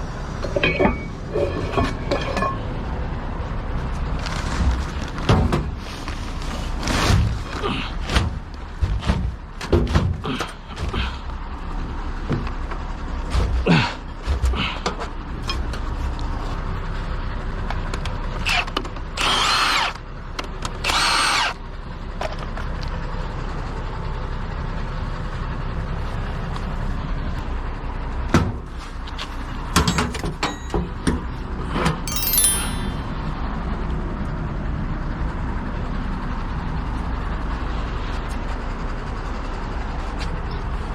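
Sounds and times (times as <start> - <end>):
knocks and clanks: 8.1 - 11.0
power tool bursts: 19.2 - 20.0, 20.8 - 21.6.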